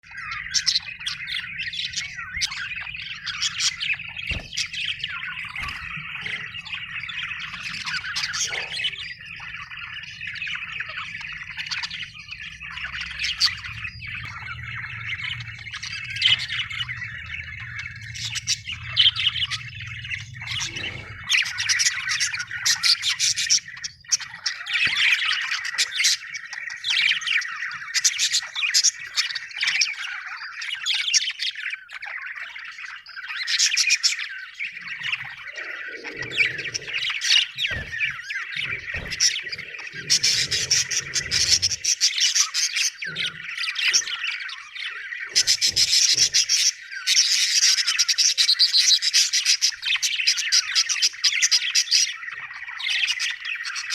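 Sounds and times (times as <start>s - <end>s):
budgerigars chirping and warbling: 0.0s - 53.9s.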